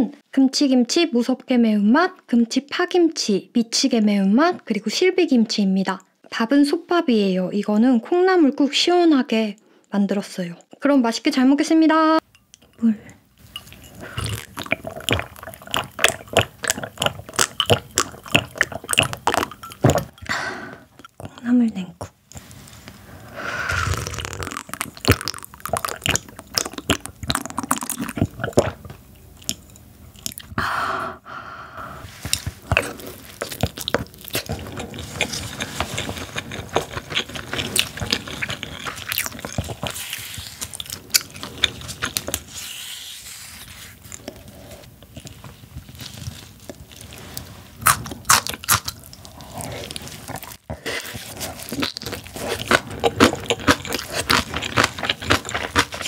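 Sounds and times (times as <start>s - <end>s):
crunching and chewing food: 13.4s - 20.2s, 23.7s - 30.6s, 32.1s - 56.0s
sipping soup: 13.4s - 21.4s, 22.3s - 30.7s.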